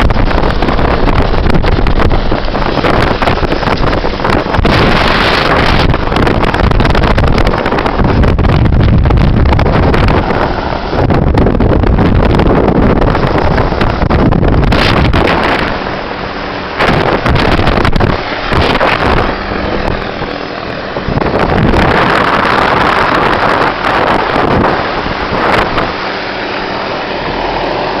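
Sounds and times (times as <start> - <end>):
wind buffeting on microphone: 0.0 - 28.0
helicopter engine and rotor drone: 9.8 - 22.8, 24.5 - 28.0.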